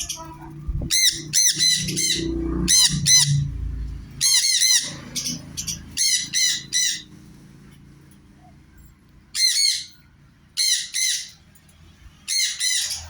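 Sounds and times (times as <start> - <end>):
parrots screeching: 0.0 - 3.5, 4.2 - 7.1, 9.4 - 10.0, 10.6 - 11.4, 12.2 - 13.0.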